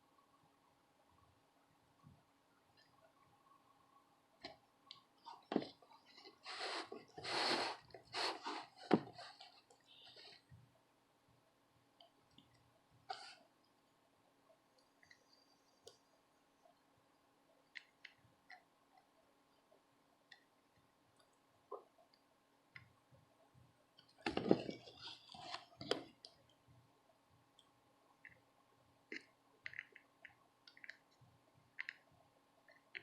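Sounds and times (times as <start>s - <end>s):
faint steady hum: 0.0s - 33.0s
handling and rustling: 5.2s - 10.6s, 24.1s - 26.3s.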